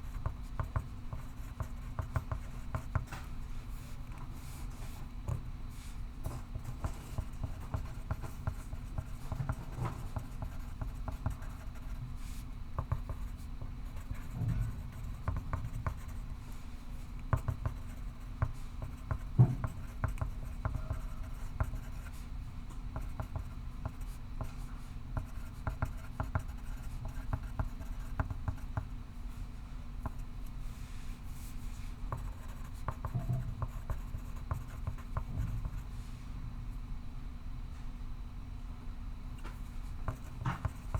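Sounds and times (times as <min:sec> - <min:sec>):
low room hum: 0:00.0 - 0:40.9
pencil scratching on paper: 0:06.6 - 0:12.0, 0:13.9 - 0:16.1, 0:18.8 - 0:22.2, 0:32.1 - 0:35.0
knock on a desk: 0:19.1 - 0:21.0, 0:32.1 - 0:35.8.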